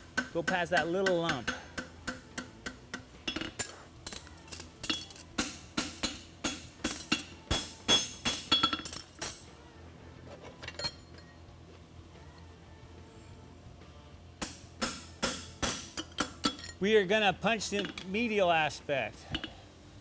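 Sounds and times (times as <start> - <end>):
hammer ringing on anvil: 0.2 - 3.8, 4.9 - 9.0, 17.6 - 18.3.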